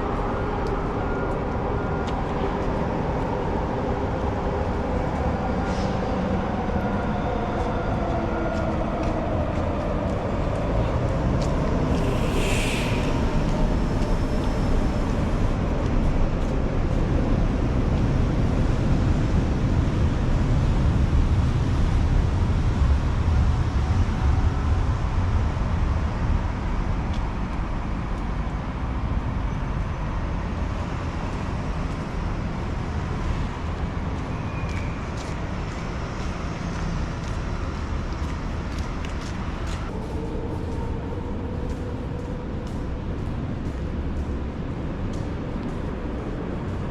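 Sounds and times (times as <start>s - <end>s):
passing vehicles rumbling: 0.0s - 20.3s.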